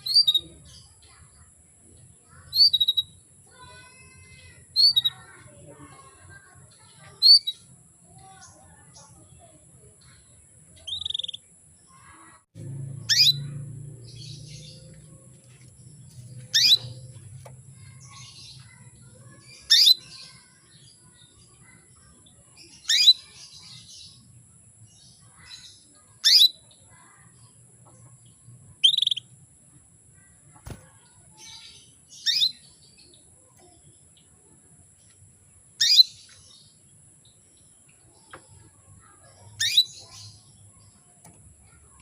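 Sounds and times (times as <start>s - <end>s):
faint bird chirps: 0.0s - 29.5s, 30.1s - 42.0s
canary short sharp calls: 13.1s - 13.5s, 16.5s - 16.9s, 35.8s - 36.1s.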